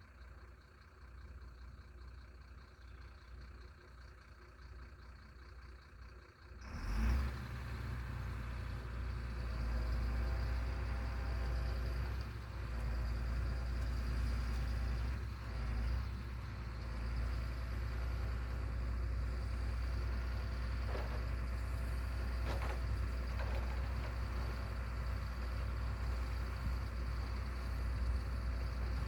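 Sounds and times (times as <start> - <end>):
low engine rumble: 0.0 - 29.0.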